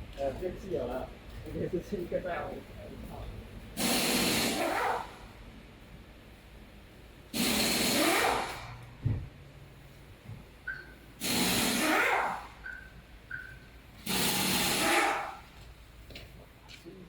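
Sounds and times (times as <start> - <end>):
hissing bursts: 3.8 - 5.2, 7.3 - 8.8, 11.2 - 15.5
low thump: 9.0 - 9.3.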